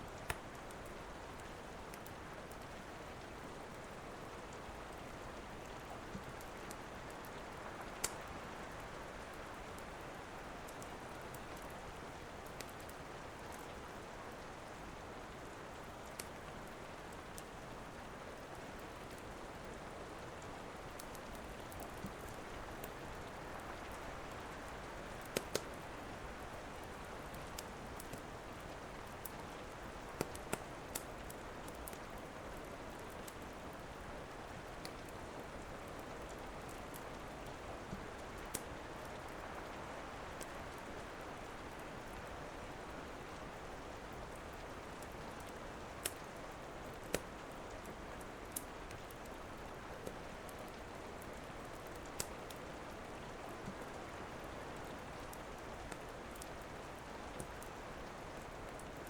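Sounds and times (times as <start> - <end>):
steady rain: 0.0 - 59.0
wood fire popping: 8.0 - 8.3, 25.2 - 25.9, 51.8 - 52.6.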